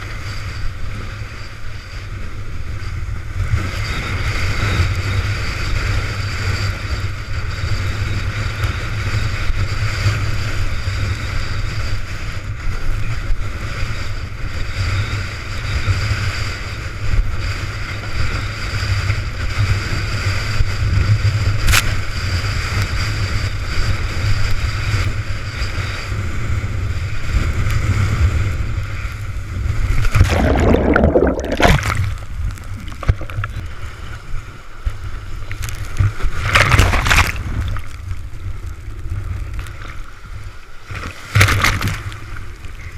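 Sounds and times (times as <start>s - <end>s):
wind buffeting microphone: 2.1s - 40.5s
water rushing and sloshing: 29.1s - 42.9s
water splash: 29.9s - 33.9s, 36.0s - 38.0s, 41.0s - 42.2s.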